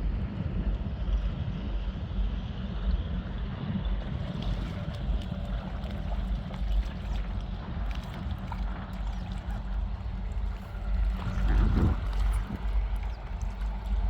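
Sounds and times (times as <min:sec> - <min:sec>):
strong wind buffeting microphone: 0:00.0 - 0:14.0
river water gurgling and splashing: 0:04.0 - 0:14.0.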